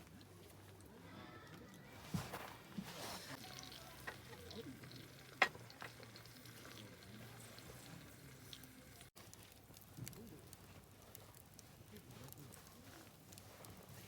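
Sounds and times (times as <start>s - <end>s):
food sizzling in a pan: 3.0s - 9.2s.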